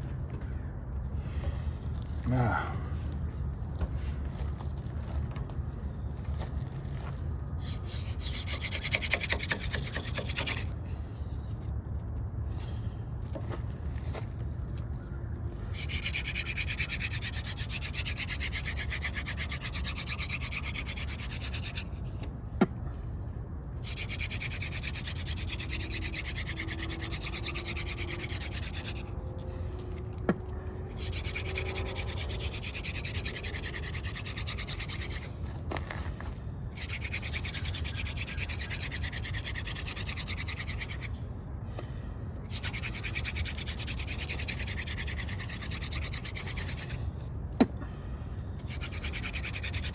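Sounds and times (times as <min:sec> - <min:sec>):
hand drill friction rubbing: 0:15.7 - 0:22.0, 0:23.8 - 0:30.2, 0:30.9 - 0:41.2, 0:42.5 - 0:47.1, 0:48.6 - 0:49.9.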